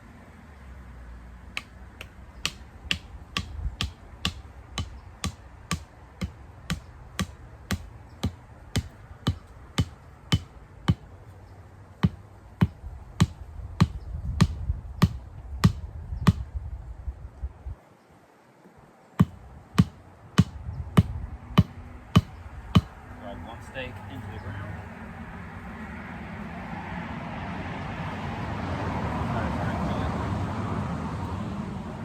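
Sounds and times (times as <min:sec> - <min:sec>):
hammer driving stake into ground: 0:01.6 - 0:11.1, 0:12.0 - 0:16.5, 0:19.2 - 0:23.0.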